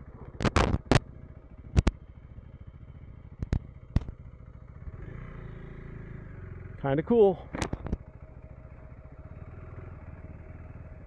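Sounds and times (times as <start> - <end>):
motorcycle engine idling: 0.0 - 11.0
sharp knocks or clicks: 3.4 - 4.2.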